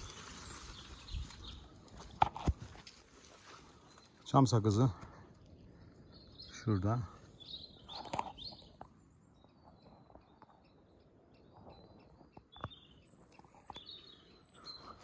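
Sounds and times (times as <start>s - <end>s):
rustle: 0.0s - 4.4s
small birds chirping: 0.0s - 15.0s.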